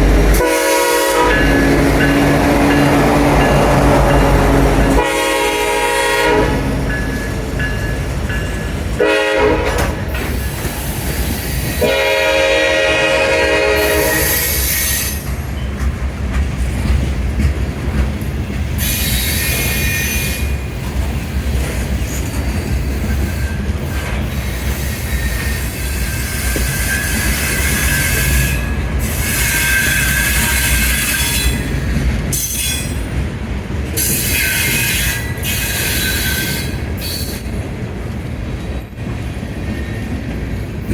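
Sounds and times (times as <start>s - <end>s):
locomotive horn blasts: 0.2s - 6.9s, 9.0s - 10.0s, 11.8s - 14.6s
train wheel clatter: 6.5s - 12.3s, 13.0s - 40.9s
high wheel squeal: 14.0s - 15.7s, 18.8s - 20.6s, 22.4s - 33.0s, 34.0s - 37.5s.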